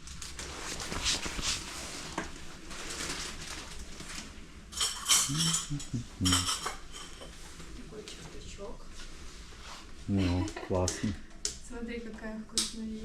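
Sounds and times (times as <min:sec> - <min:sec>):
dishes and cutlery clinking: 0:04.7 - 0:07.4
kitchen handling noises: 0:04.7 - 0:07.4.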